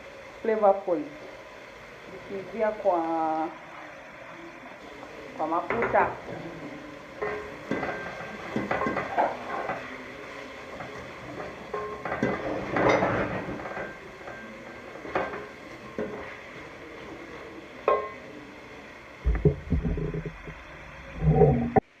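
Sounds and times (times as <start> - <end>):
vegetables sizzling in oil: 0.0 - 22.0
spoon scraping a pot: 5.7 - 17.2.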